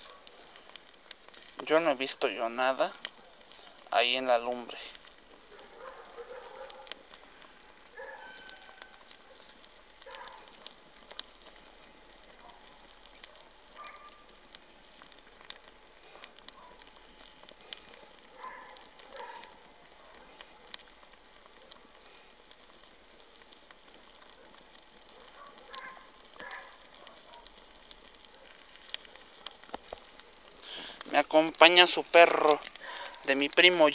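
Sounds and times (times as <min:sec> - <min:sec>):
bonfire crackling and popping: 0:00.0 - 0:33.9.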